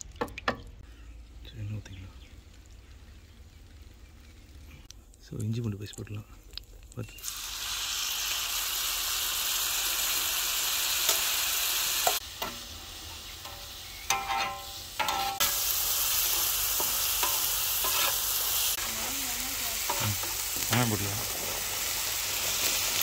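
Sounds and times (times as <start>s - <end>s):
paste sizzling on griddle: 2.2s - 4.9s, 5.6s - 23.0s
metal spatula scraping griddle: 13.5s - 15.5s, 16.8s - 18.2s.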